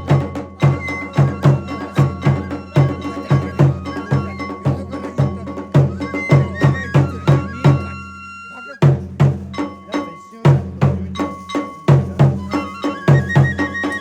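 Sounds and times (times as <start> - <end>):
flute playing long notes: 0.0 - 9.2, 12.2 - 14.0
drum beating quickly: 0.0 - 14.0.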